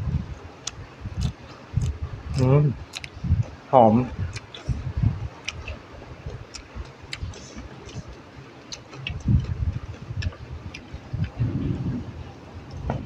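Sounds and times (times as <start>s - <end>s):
person chewing food: 0.6s - 3.5s, 4.3s - 11.4s
wet mouth clicks and lip smacks: 2.9s - 3.2s, 5.4s - 5.8s.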